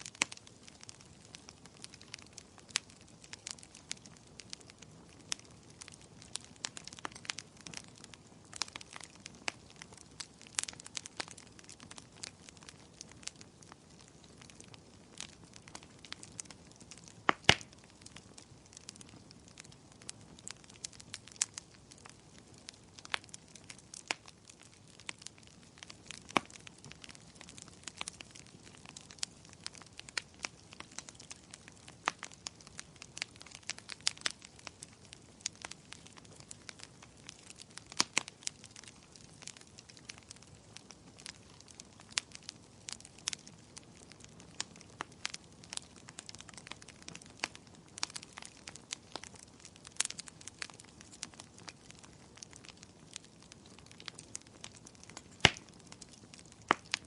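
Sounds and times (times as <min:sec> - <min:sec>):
firewood crackling and popping: 0:00.0 - 0:57.0
soft hiss of flames: 0:00.0 - 0:57.0.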